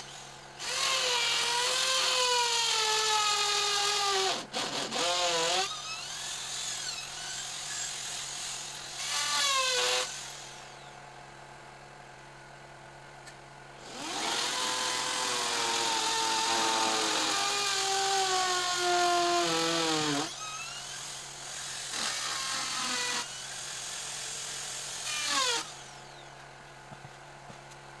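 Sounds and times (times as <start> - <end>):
electric power tool motor whining: 13.9 - 26.2.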